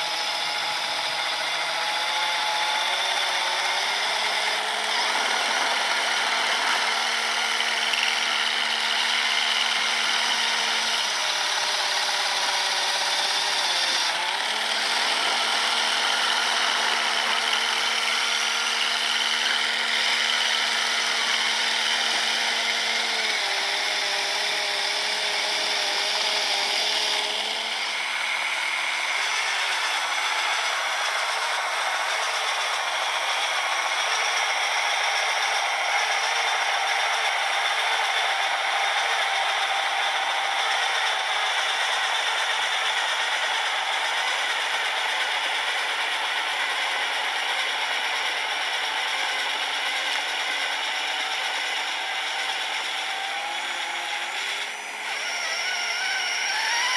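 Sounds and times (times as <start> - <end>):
electric motor whine: 0.0 - 56.9.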